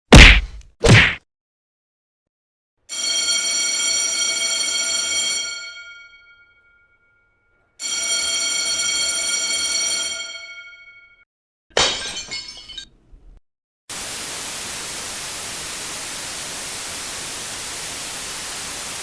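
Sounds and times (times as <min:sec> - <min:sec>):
electric telephone bell ringing: 0:02.9 - 0:07.0, 0:07.8 - 0:11.2.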